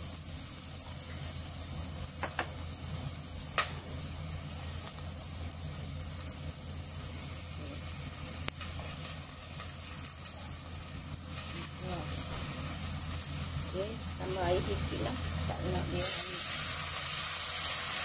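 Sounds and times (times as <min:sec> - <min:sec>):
food sizzling in oil: 0:00.0 - 0:18.0.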